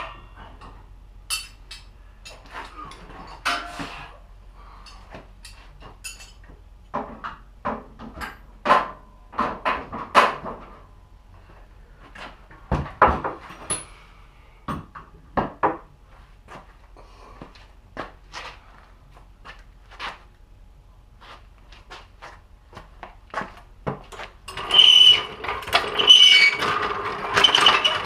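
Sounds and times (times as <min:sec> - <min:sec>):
metal tools clanking: 0:13.5 - 0:14.0.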